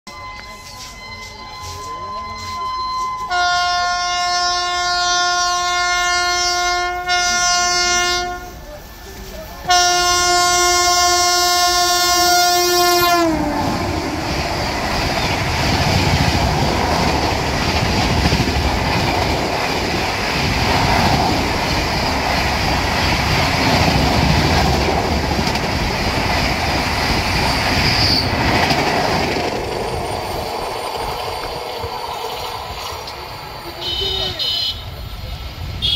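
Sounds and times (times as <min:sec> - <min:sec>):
locomotive horn blasts: 0:02.4 - 0:08.6, 0:09.7 - 0:13.8, 0:33.8 - 0:35.0
train wheels clattering on rails: 0:13.4 - 0:34.4.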